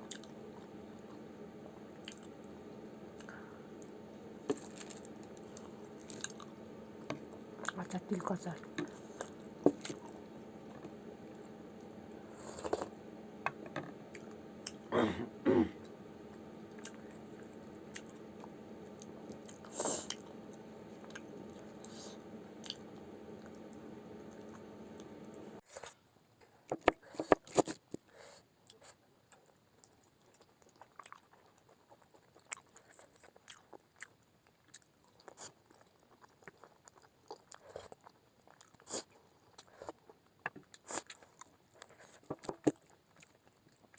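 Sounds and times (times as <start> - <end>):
steady background hum: 0.0 - 27.8
person chewing food: 0.1 - 1.2, 2.0 - 2.4, 3.2 - 7.8, 15.7 - 26.0, 28.6 - 43.9.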